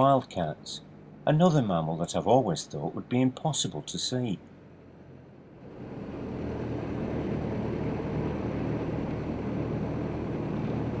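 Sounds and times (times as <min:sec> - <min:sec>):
vehicle engine humming: 0:00.0 - 0:11.0
rushing noise: 0:05.6 - 0:11.0.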